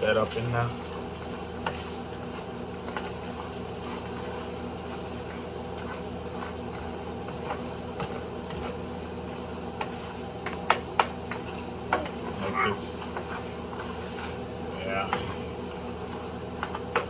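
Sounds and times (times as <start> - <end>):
meat sizzling in a pan: 0.0 - 17.0
utensil clicking against pan: 9.7 - 12.2, 15.8 - 17.0.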